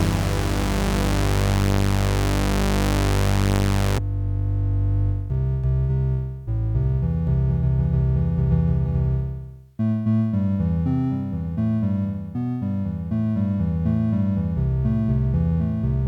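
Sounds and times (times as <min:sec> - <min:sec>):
synthesizer playing low notes: 0:00.0 - 0:04.0.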